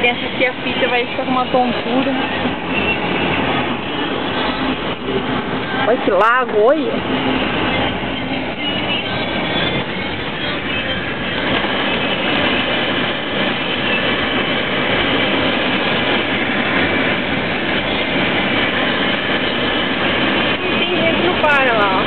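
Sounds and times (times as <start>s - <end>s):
heavy rain on car: 0.0s - 22.0s
road rumble: 0.0s - 22.0s.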